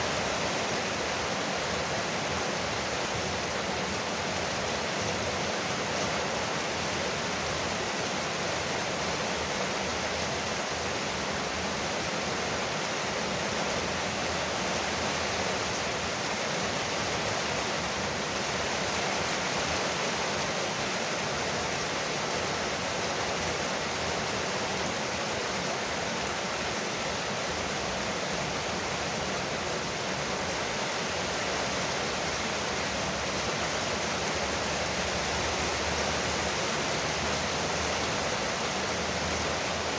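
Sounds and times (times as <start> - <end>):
rain on a porch roof: 0.0 - 39.9.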